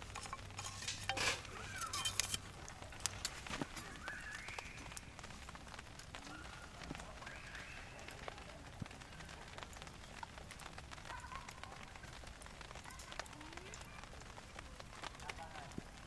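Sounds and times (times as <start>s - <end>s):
bird calling: 0.0s - 2.4s, 3.8s - 5.1s
campfire crackling and popping: 0.0s - 16.0s.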